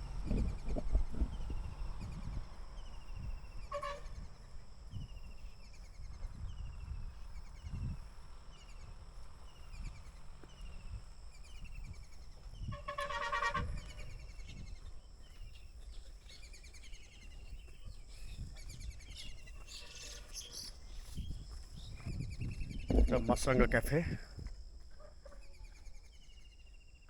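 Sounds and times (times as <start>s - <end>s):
bird chirping: 0.0s - 23.8s
loud pitched call or horn: 3.6s - 4.4s, 12.7s - 14.2s.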